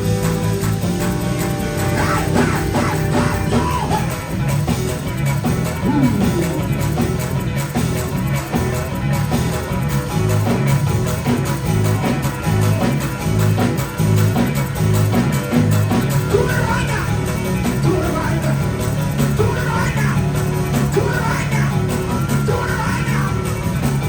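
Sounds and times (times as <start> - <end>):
bass pulsing: 0.0 - 24.0
drums: 0.0 - 24.0
electric guitar: 0.0 - 24.0.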